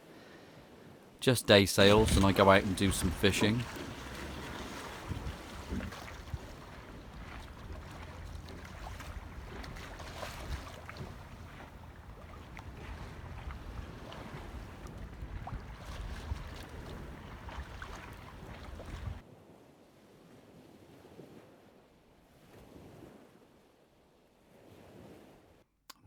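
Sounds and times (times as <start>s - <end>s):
small splashes: 1.2s - 19.2s
wind buffeting microphone: 1.8s - 19.2s.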